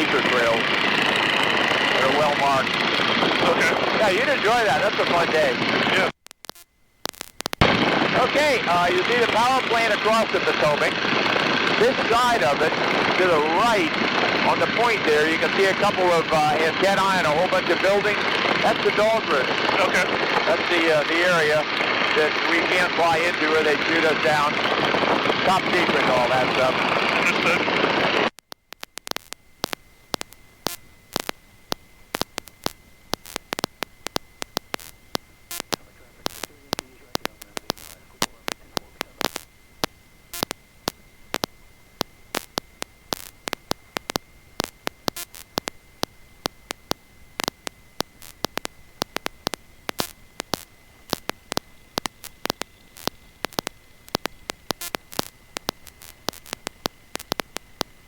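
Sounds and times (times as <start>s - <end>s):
aircraft engine: 0.0s - 5.9s, 7.6s - 28.3s
faint electrical hum: 0.0s - 58.0s
high whine: 0.0s - 58.0s
sharp static clicks: 0.0s - 58.0s.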